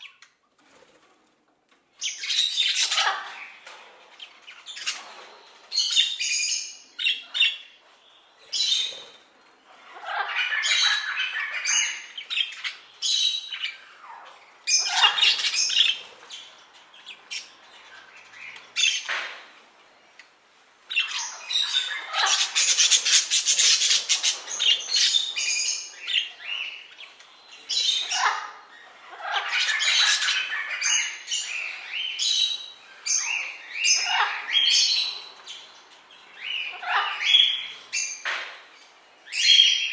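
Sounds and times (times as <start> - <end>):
parrots squawking: 2.0 - 3.6, 8.6 - 19.4, 20.9 - 38.3.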